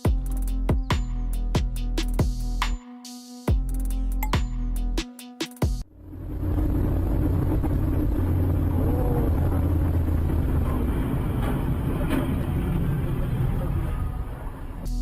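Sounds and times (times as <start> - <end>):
car engine and road noise: 5.8 - 15.0.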